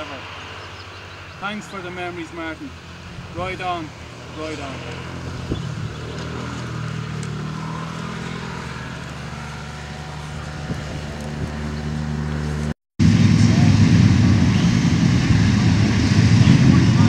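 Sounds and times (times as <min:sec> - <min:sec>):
motorcycle engines idling: 0:00.0 - 0:12.7.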